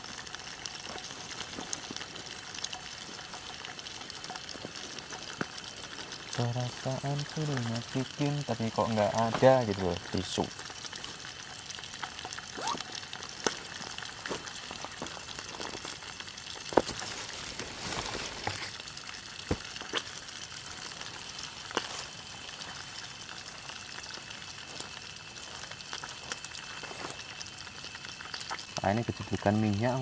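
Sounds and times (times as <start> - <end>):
oil sizzling: 0.0 - 30.0
oil spitting pops: 19.4 - 20.2.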